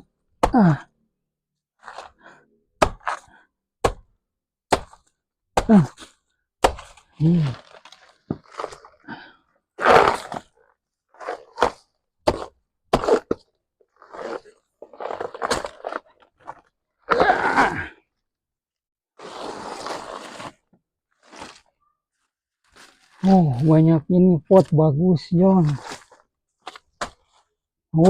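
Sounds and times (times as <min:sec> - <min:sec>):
man grunting: 0:00.5 - 0:00.9, 0:05.6 - 0:06.0, 0:07.2 - 0:07.6
debris cracking and crunching: 0:14.0 - 0:17.8.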